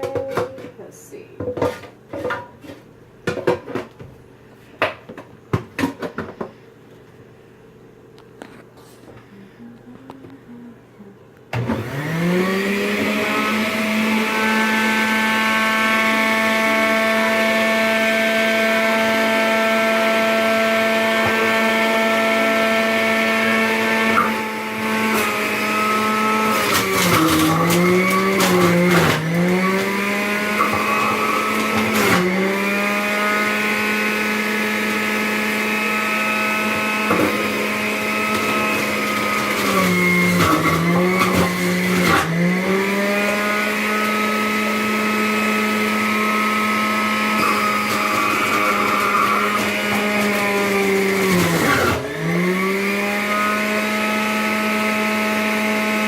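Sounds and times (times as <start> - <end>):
juicer motor whining: 11.5 - 56.0
produce crunching in juicer: 11.5 - 56.0.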